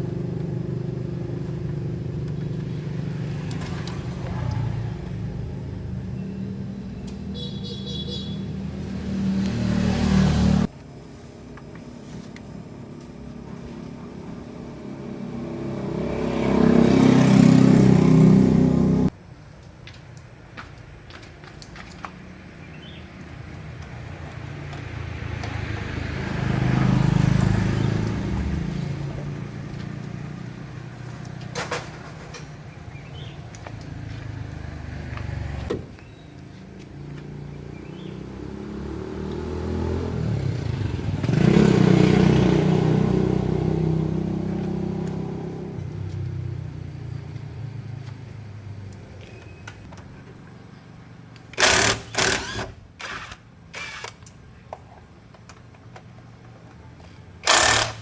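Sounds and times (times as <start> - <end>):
vehicle engine: 0.0 - 19.2, 21.4 - 58.0.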